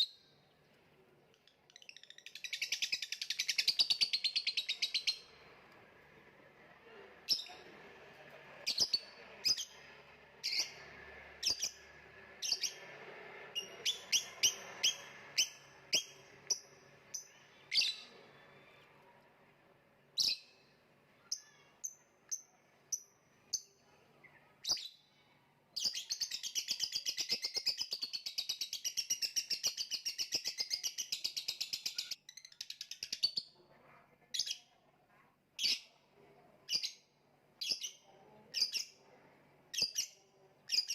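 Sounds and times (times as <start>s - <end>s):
lovebird chirping and trilling: 1.4s - 5.4s, 8.6s - 9.8s, 10.4s - 11.8s, 12.4s - 12.8s, 13.6s - 18.5s, 20.2s - 23.7s, 25.8s - 33.6s, 36.7s - 39.0s, 39.7s - 40.9s.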